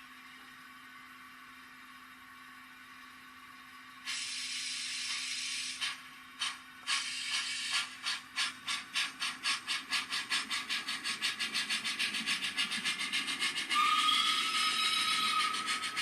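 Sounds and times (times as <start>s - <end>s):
simulated steam exhaust chuffs: 4.0s - 16.0s
steady whistle tone: 11.5s - 16.0s.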